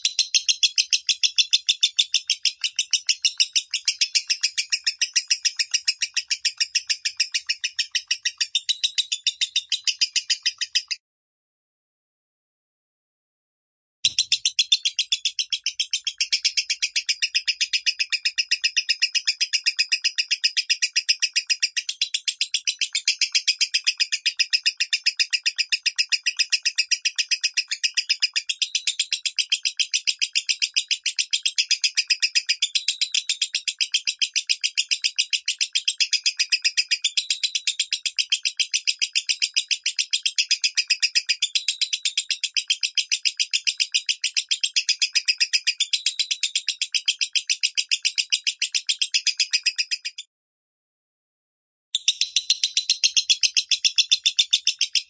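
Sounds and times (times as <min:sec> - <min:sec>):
bird rapid high chirps: 0:00.0 - 0:11.0, 0:14.0 - 0:50.3, 0:52.0 - 0:55.0.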